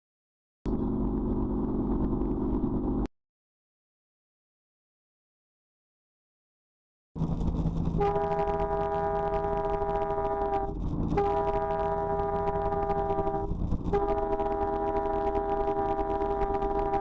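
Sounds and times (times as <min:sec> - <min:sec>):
low rumble: 0:00.7 - 0:03.1, 0:07.2 - 0:17.0
multi-tone horn blaring: 0:08.0 - 0:17.0.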